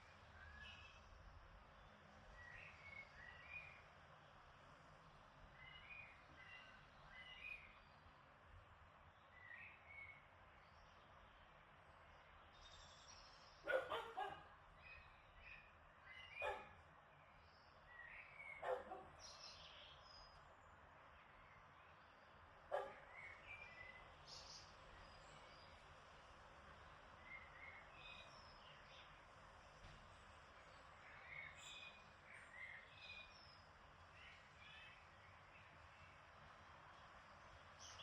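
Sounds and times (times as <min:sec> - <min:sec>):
faint breeze hiss: 0:00.0 - 0:38.0.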